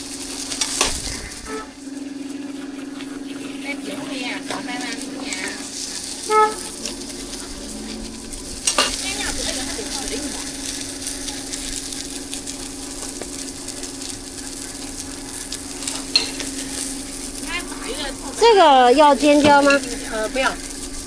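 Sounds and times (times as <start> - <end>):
food sizzling in hot oil: 8.1 - 18.2.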